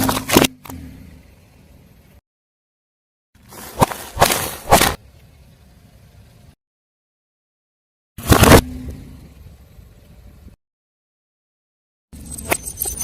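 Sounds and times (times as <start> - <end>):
tyre crushing objects: 3.4 - 5.0.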